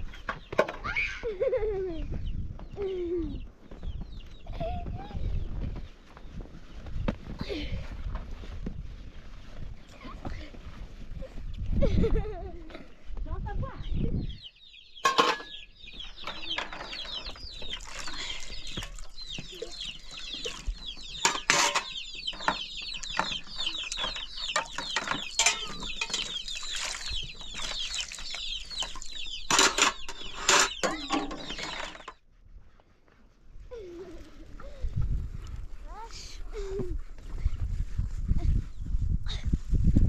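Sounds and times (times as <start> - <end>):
chicks peeping: 1.6 - 7.1, 13.8 - 32.2.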